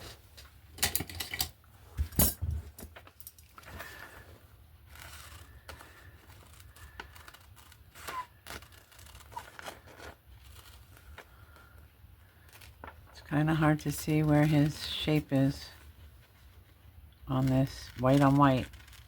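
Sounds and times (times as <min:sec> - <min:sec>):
paper rustling: 0:02.8 - 0:19.0
scissors cutting paper: 0:04.9 - 0:11.2, 0:17.3 - 0:19.0.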